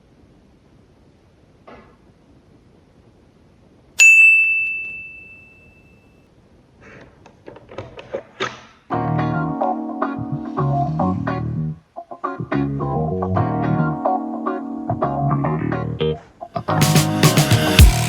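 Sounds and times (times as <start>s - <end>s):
sharp metallic ding: 4.0s - 6.0s
music: 8.9s - 18.0s.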